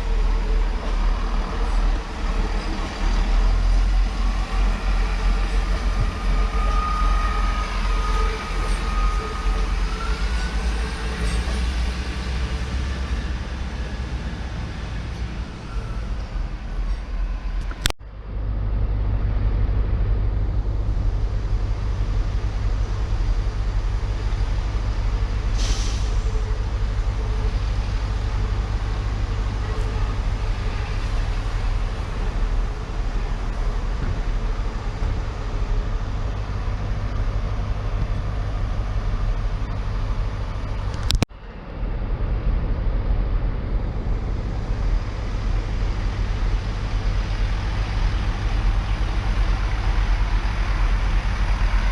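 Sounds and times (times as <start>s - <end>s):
train diesel engine rumbling: 0.0s - 51.9s
air brakes hissing: 25.6s - 26.4s.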